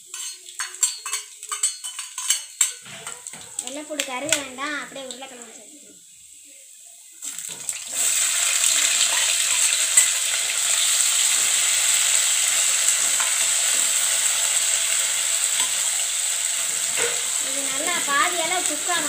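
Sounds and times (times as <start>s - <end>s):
spoon stirring in oil: 0.0s - 4.4s, 9.0s - 10.3s, 16.8s - 19.0s
potatoes sizzling in oil: 0.0s - 19.0s.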